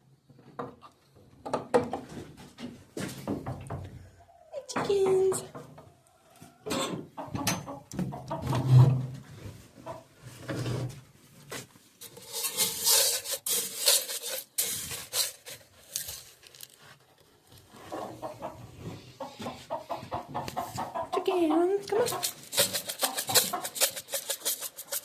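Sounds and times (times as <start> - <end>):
chickens clucking: 3.8 - 10.2, 17.7 - 25.0
rustling and scraping: 8.3 - 21.0, 21.8 - 25.0.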